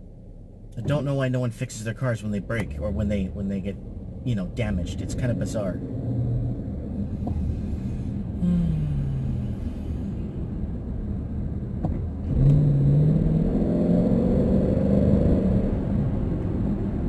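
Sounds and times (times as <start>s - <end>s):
road rumble: 0.0s - 17.0s
car engine accelerating: 0.7s - 17.0s.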